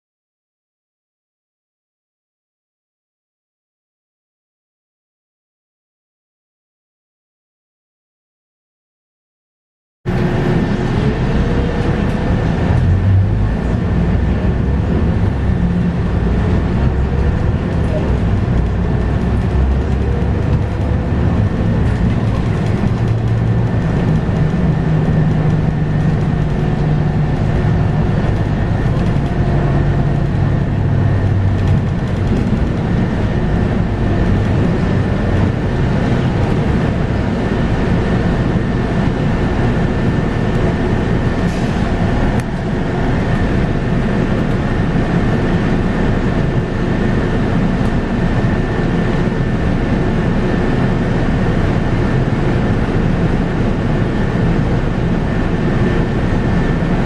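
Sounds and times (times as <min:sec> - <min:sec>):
bus engine hum: 0:10.1 - 0:57.0
road and drivetrain noise: 0:10.1 - 0:57.0.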